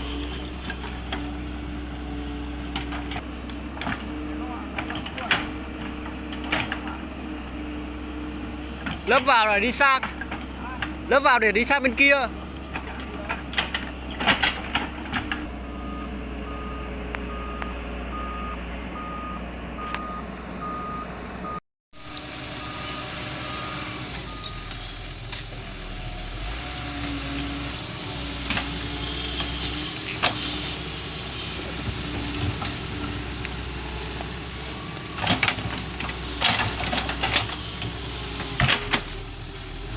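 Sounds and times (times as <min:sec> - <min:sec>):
excavator diesel engine running: 0:00.0 - 0:39.9
travel alarm beeping: 0:15.8 - 0:21.6.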